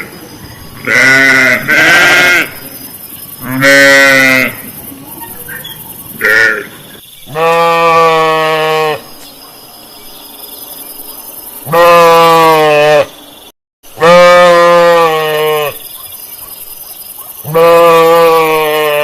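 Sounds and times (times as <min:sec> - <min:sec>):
sheep bleating: 0:00.8 - 0:02.5, 0:03.4 - 0:04.6, 0:07.3 - 0:09.0, 0:14.0 - 0:15.8, 0:17.5 - 0:19.0.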